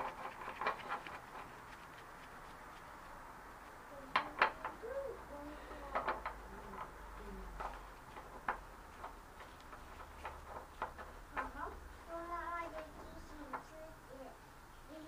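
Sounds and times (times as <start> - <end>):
pigeon cooing: 4.2 - 5.7.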